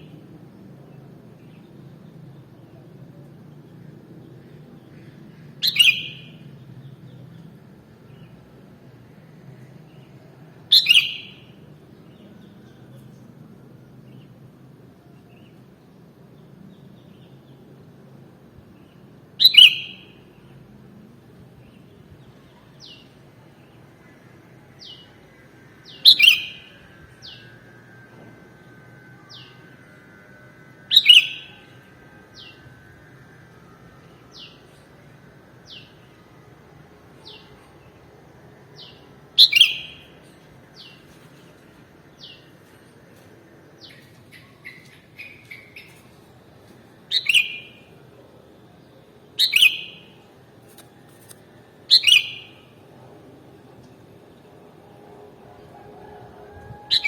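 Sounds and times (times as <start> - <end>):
bird calling loudly: 51.9 - 52.5, 56.8 - 57.0.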